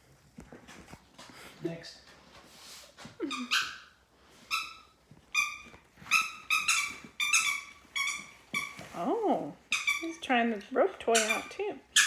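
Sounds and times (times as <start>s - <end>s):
squeaky dog toy squeaks: 3.2s - 9.0s, 9.7s - 10.4s, 11.1s - 12.0s.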